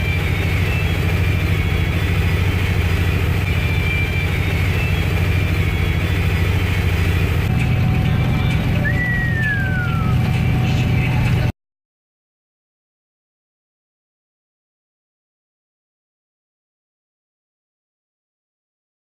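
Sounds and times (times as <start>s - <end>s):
car driving rumble: 0.0s - 11.5s
faint thin whistle: 8.8s - 10.2s.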